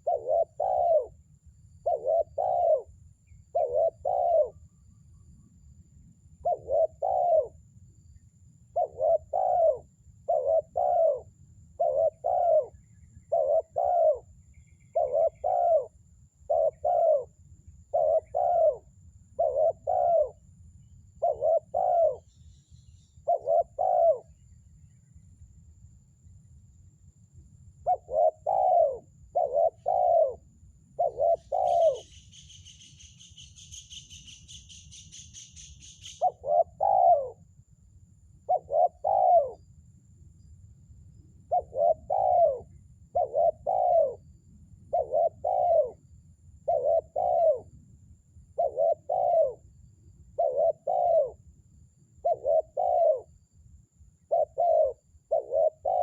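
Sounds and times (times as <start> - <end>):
dove cooing: 0.0 - 1.2, 1.8 - 4.6, 6.4 - 7.6, 8.7 - 14.3, 14.9 - 20.4, 21.2 - 22.3, 23.2 - 24.4, 27.8 - 37.4, 38.5 - 39.6, 41.4 - 44.2, 44.9 - 46.0, 46.6 - 47.7, 48.6 - 49.6, 50.4 - 51.4, 52.2 - 53.3, 54.3 - 56.0.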